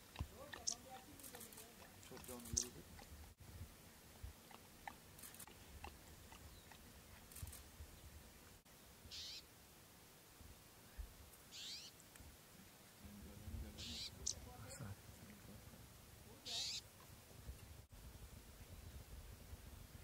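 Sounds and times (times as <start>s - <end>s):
bird calling: 0.5s - 1.5s, 2.2s - 2.8s, 9.1s - 9.5s, 11.5s - 12.0s, 13.8s - 14.8s, 16.4s - 16.9s.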